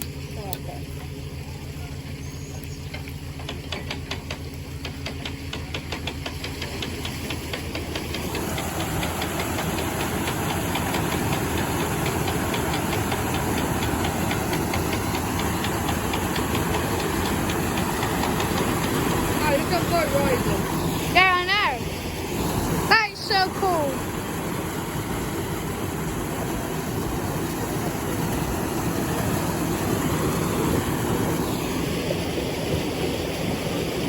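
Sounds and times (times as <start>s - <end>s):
boat engine knocking: 0.0s - 34.0s
rushing hiss: 6.8s - 34.0s.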